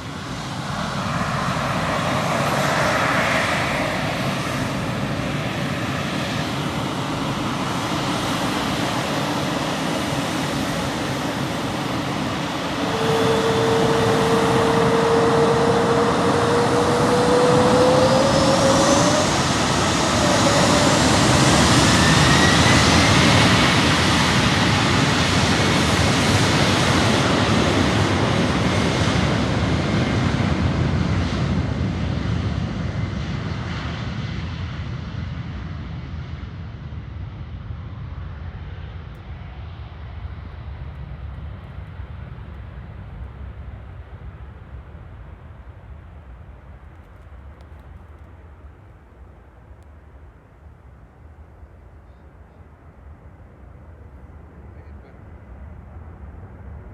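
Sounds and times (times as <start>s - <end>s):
rising jet whine: 0.0s - 34.3s
jet engines at takeoff: 0.0s - 56.9s.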